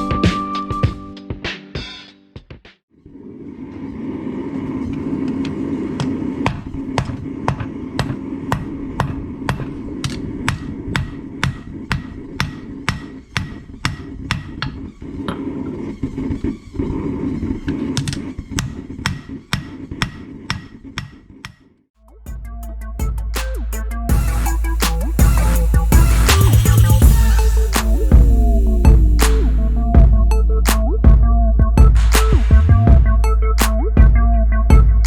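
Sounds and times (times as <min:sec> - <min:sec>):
hammer striking steel on anvil: 0:06.4 - 0:14.8
steady low rumble: 0:22.3 - 0:35.0.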